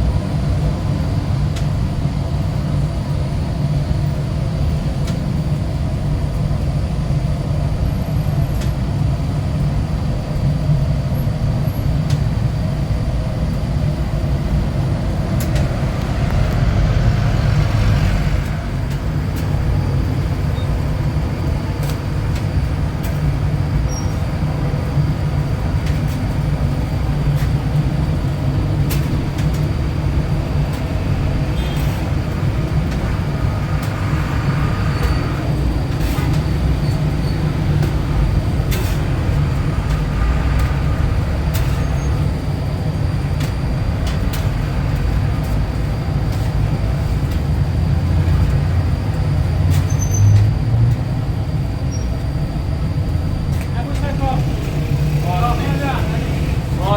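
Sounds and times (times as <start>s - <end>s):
motorcycle engine rumbling: 13.8s - 49.2s.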